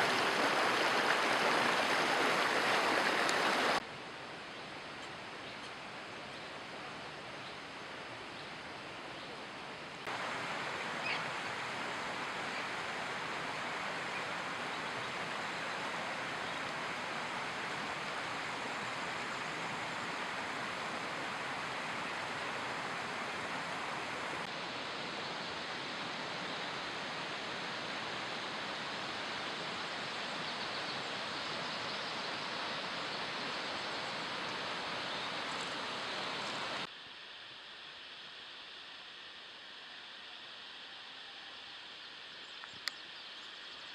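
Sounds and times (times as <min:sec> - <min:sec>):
rushing water: 0:00.0 - 0:03.9, 0:05.8 - 0:36.9.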